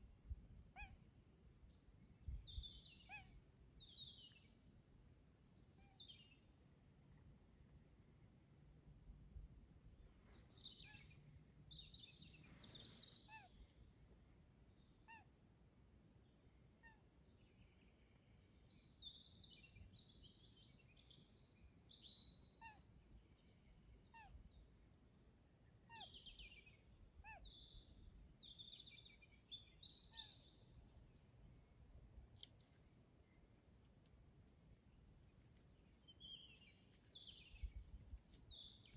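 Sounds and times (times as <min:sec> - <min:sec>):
bird chirps: 0:25.9 - 0:30.7, 0:35.8 - 0:38.9.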